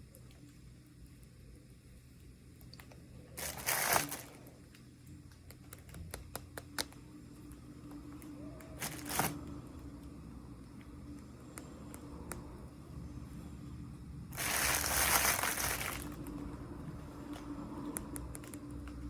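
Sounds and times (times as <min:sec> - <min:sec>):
plastic packaging crinkling: 0:03.4 - 0:04.5, 0:08.8 - 0:09.4, 0:14.4 - 0:16.4
light clicks and taps: 0:04.7 - 0:08.8, 0:09.9 - 0:12.5, 0:17.3 - 0:19.0.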